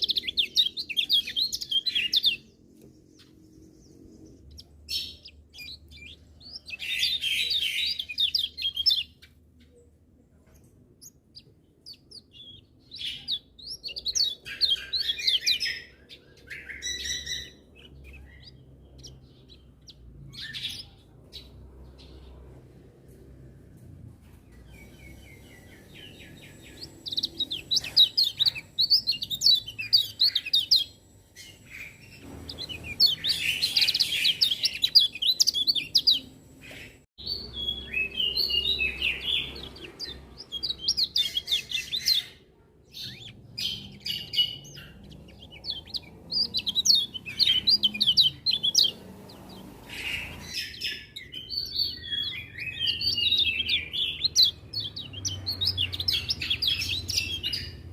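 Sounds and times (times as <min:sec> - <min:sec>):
bird chirping twitters: 0:00.0 - 0:22.8, 0:24.5 - 0:57.9.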